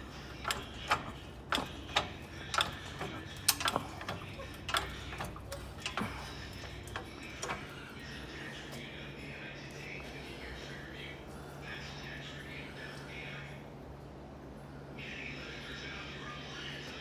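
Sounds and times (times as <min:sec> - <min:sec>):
car jack clicking: 0:00.0 - 0:07.8.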